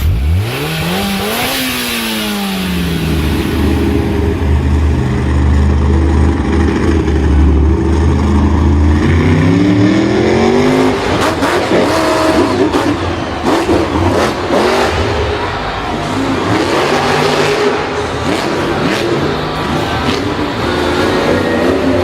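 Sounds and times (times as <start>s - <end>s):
vehicle engine revving: 0.0s - 22.0s.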